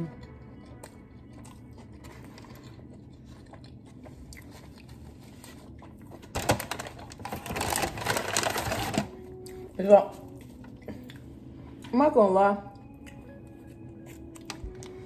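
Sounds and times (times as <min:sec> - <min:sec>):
person chewing: 0:00.0 - 0:06.3, 0:10.3 - 0:11.5, 0:12.8 - 0:15.0
crackling and rustling: 0:04.4 - 0:09.1.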